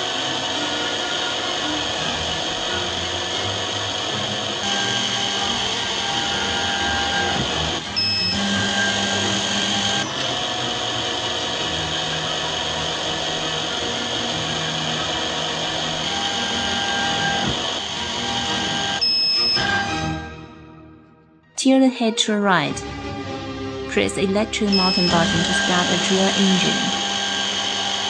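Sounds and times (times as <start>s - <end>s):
drill motor running: 0.0s - 20.3s, 24.7s - 28.0s
short high beep: 19.0s - 19.8s, 24.7s - 25.9s.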